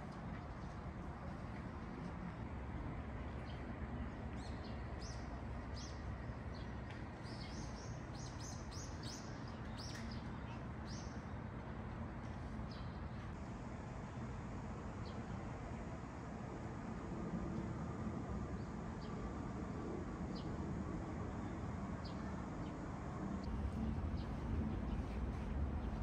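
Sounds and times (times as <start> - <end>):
steady low rumble: 13.2 - 26.0.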